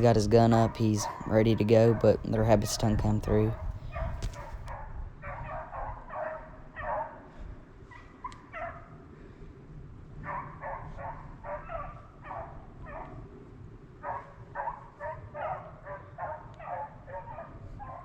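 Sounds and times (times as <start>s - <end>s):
dogs barking: 0.0s - 7.3s, 7.9s - 9.0s, 10.2s - 13.2s, 14.0s - 18.0s.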